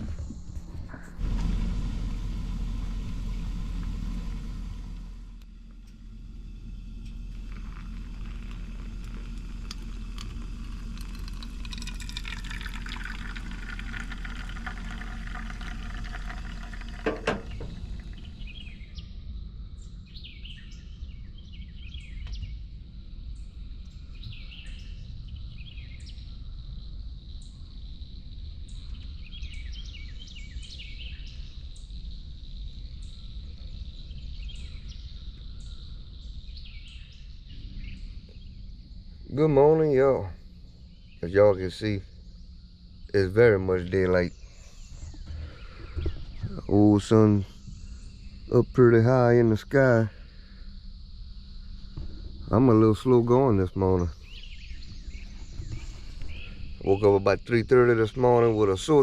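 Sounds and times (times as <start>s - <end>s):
generator humming: 0.0s - 18.9s
birds chirping: 0.0s - 59.0s.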